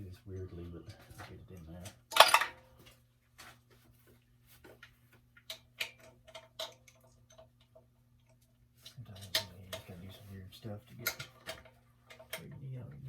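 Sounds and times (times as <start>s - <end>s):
metal clank: 2.1s - 2.6s.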